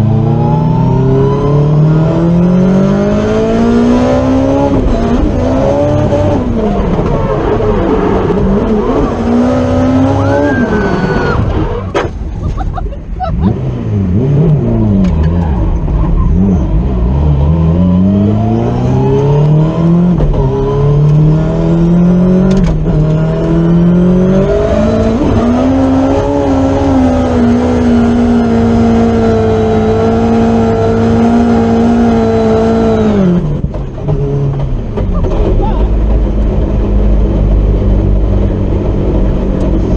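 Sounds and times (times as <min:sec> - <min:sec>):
car engine revving hard: 0:00.0 - 0:11.6, 0:13.3 - 0:34.6.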